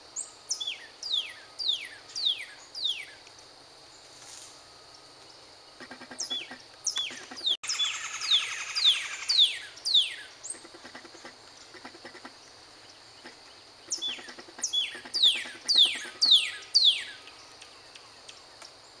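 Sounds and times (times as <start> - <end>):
bird whistling downward notes: 7.1 - 10.2.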